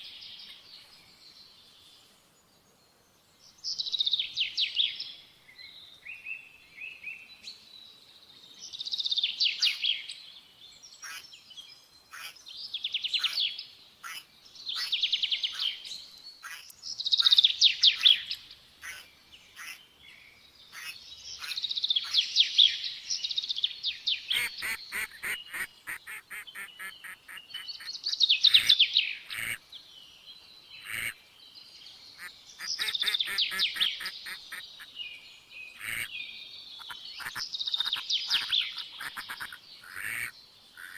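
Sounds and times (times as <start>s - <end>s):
songbirds trilling: 10.8s - 40.9s.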